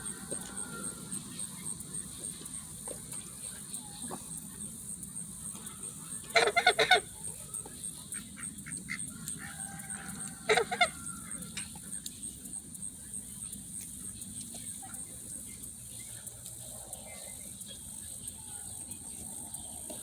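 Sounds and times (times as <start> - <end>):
geese honking: 5.3 - 11.8.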